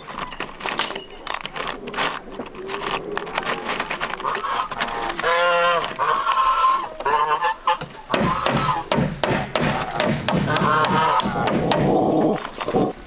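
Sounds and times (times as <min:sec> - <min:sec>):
fowl honking calls: 0:04.2 - 0:08.9, 0:10.4 - 0:11.4.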